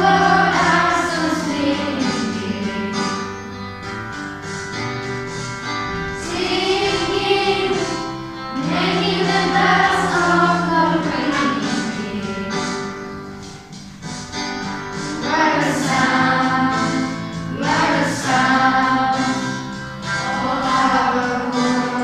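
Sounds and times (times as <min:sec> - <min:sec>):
choir singing: 0:00.0 - 0:03.3, 0:05.9 - 0:12.9, 0:15.0 - 0:22.0
instrumental backing: 0:00.0 - 0:22.0.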